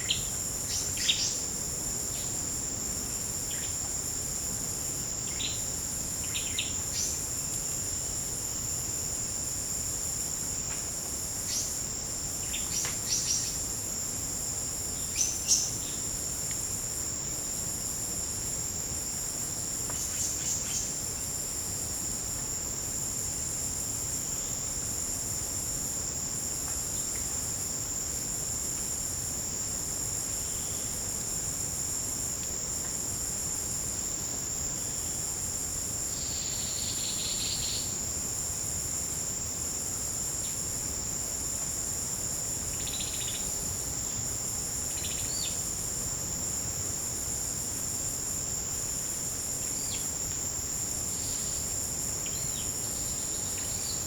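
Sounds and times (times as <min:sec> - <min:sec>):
insect high-pitched trill: 0:00.0 - 0:21.9, 0:22.6 - 0:54.0
shrill insect calls: 0:00.0 - 0:54.0.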